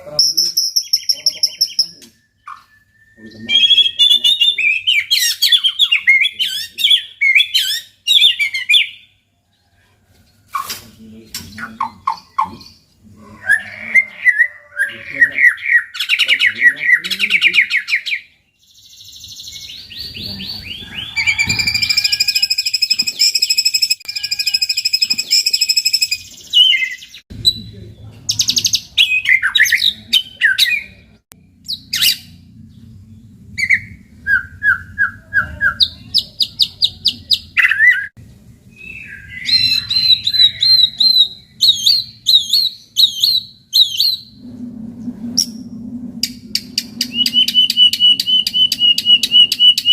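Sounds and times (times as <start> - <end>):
bird singing whistled phrases: 0.2 - 9.0, 19.6 - 27.6, 38.7 - 44.4, 47.0 - 49.9
faint low hum: 31.3 - 37.6.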